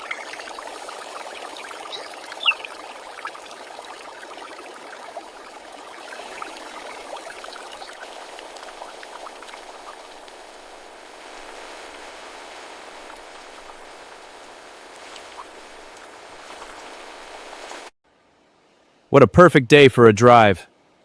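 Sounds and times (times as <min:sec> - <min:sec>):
water bubbling and trickling: 0:00.0 - 0:17.8
small crackles: 0:02.7 - 0:17.9.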